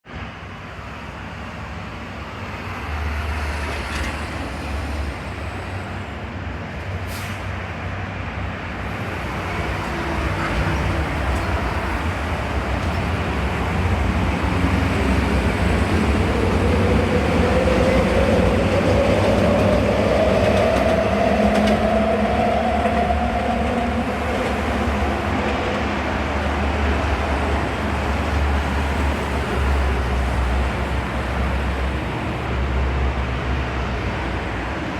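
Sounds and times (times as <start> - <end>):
train passing with whine: 0.1 - 34.9.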